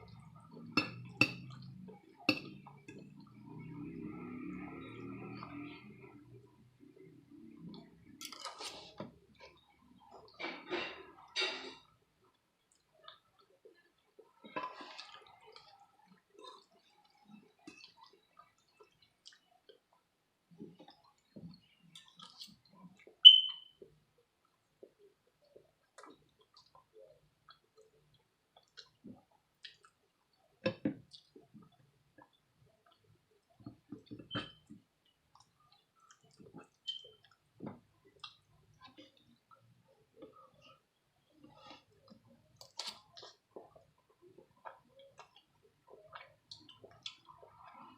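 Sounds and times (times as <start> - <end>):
close chewing sounds: 12.2 - 23.2, 24.4 - 34.1, 34.7 - 47.9
wet chewing and squelching: 20.6 - 23.4
high pings: 23.2 - 23.7.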